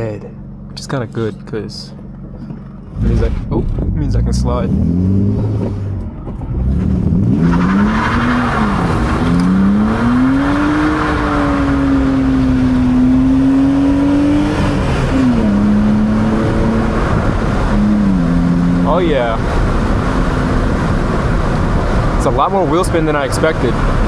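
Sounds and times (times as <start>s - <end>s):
car engine revving: 2.2s - 24.0s
spinning tyres hissing: 7.0s - 22.2s.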